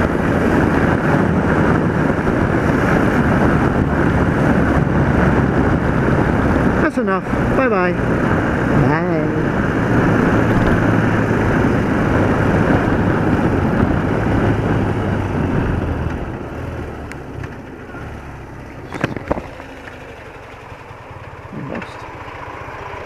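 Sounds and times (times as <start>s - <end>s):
wind noise on microphone: 0.0s - 17.4s, 18.8s - 19.6s
motorcycle engine running: 0.0s - 23.0s.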